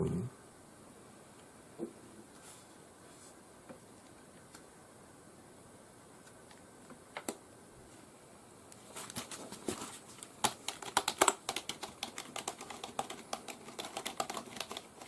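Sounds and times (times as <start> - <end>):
keyboard keystrokes: 10.4 - 15.0.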